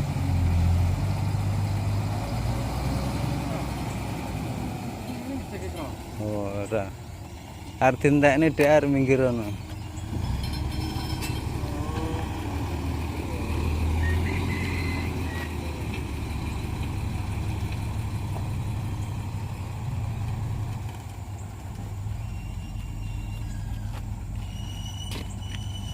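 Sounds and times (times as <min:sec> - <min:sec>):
truck engine running: 0:00.0 - 0:25.9.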